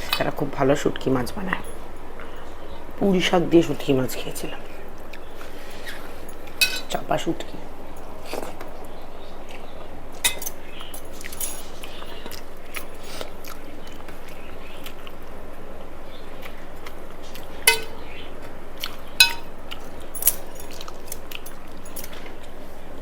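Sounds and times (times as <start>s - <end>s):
steady background hiss: 0.0s - 23.0s
dishes clinking: 5.7s - 7.1s, 10.2s - 12.1s, 17.7s - 18.3s, 19.2s - 22.3s.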